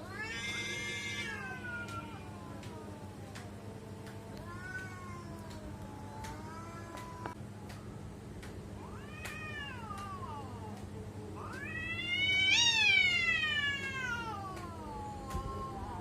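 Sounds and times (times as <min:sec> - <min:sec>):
cat yowling: 0:00.0 - 0:03.4, 0:04.4 - 0:07.4, 0:11.4 - 0:16.0.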